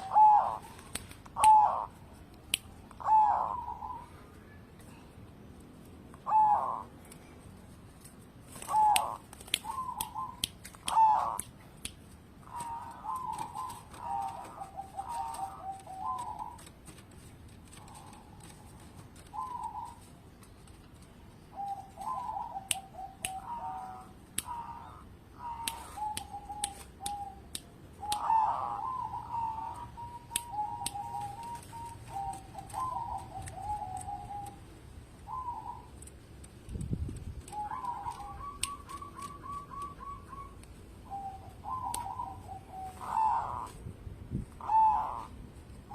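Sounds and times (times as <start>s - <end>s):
dove cooing: 0.0s - 0.8s, 1.4s - 2.0s, 3.0s - 4.2s, 6.2s - 6.9s, 8.6s - 11.4s, 12.4s - 16.8s, 17.7s - 20.1s, 21.5s - 27.4s, 28.0s - 34.7s, 35.3s - 36.0s, 37.5s - 43.8s, 44.6s - 45.9s
sharp clicks: 8.6s - 12.2s.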